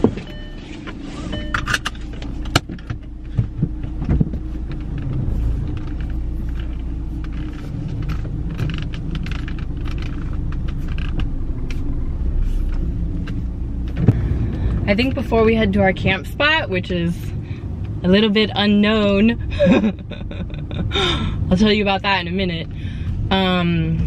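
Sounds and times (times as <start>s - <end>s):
car idling from inside: 0.0s - 24.0s
clicks and knocks of handling: 1.6s - 11.9s.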